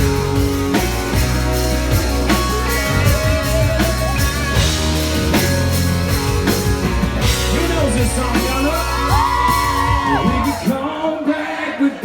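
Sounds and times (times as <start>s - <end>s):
electric guitar: 0.0s - 10.7s
bass: 0.0s - 10.9s
drum kit beat: 0.0s - 11.0s.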